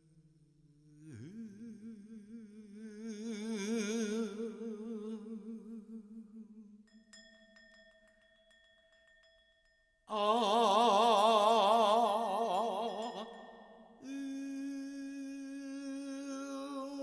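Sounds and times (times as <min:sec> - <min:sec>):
wordless singing with vibrato: 0:00.0 - 0:07.0, 0:10.1 - 0:17.0
ringing struck tone with clicks: 0:06.9 - 0:10.0.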